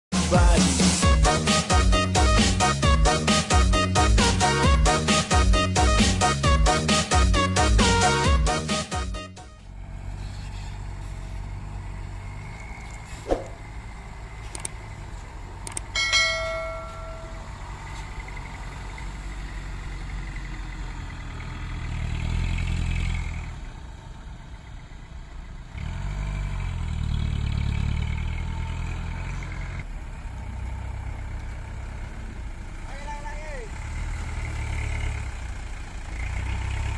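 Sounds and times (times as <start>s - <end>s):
dump truck engine revving: 0.4s - 32.9s, 33.6s - 36.9s
brief pitched tone: 16.0s - 17.8s.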